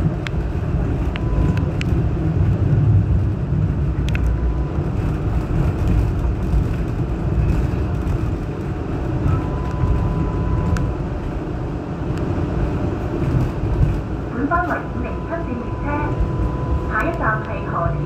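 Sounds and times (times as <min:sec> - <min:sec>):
rumble of wheels on track: 0:00.0 - 0:18.0
click: 0:04.0 - 0:04.4, 0:17.0 - 0:17.6.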